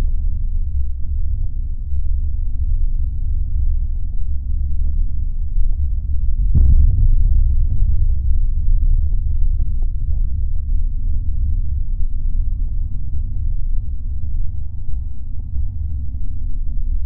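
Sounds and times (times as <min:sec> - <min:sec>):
deep fireworks rumble: 0:06.4 - 0:12.0
dull bang: 0:06.5 - 0:09.3.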